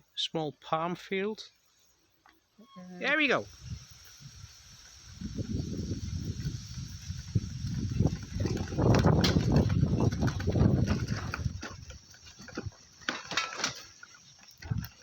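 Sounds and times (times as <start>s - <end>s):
bicycle rattling on dirt track: 3.6s - 15.0s.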